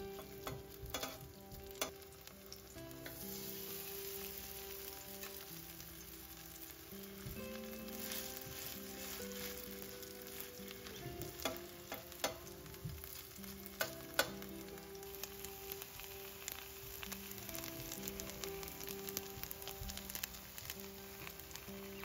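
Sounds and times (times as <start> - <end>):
patties sizzling in hot oil: 0.0 - 22.0
metal spoon clinking on pan: 0.1 - 1.2, 11.3 - 12.5.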